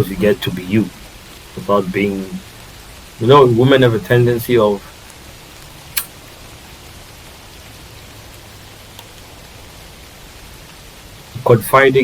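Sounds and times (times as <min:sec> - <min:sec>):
background hiss: 0:00.0 - 0:12.0
sharp click: 0:06.0 - 0:06.2.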